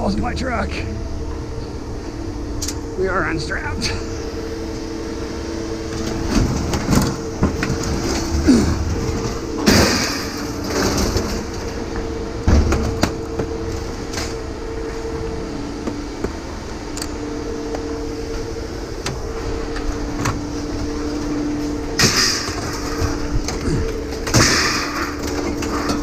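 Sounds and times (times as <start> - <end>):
machinery drone: 0.0 - 26.0
metallic clanks and knocks: 22.0 - 26.0.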